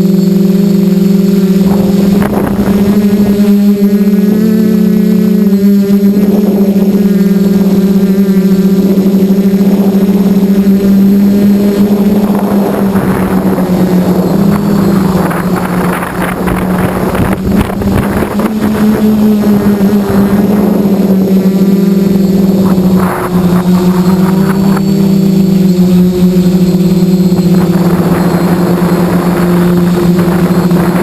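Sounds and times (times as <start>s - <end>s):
quadcopter propellers buzzing: 0.0s - 31.0s
rushing noise: 10.7s - 31.0s.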